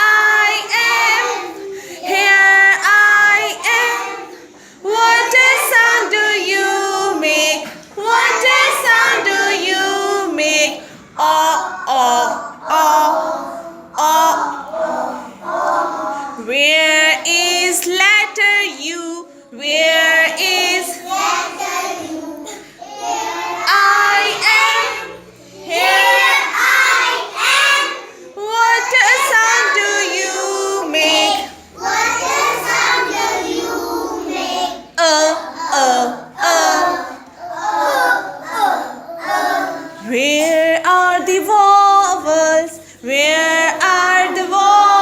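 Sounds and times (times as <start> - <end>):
child singing: 0.0 - 45.0.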